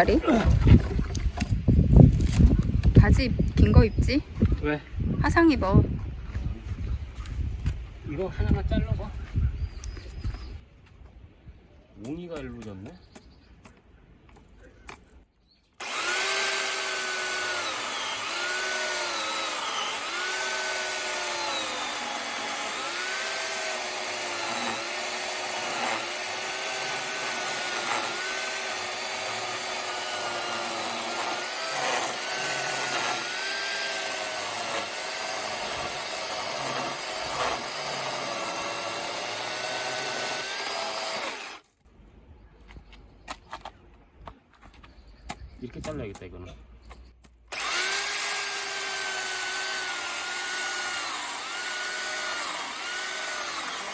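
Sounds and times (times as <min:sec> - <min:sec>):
power saw cutting logs: 0:00.0 - 0:01.6, 0:15.8 - 0:41.8, 0:47.5 - 0:53.9.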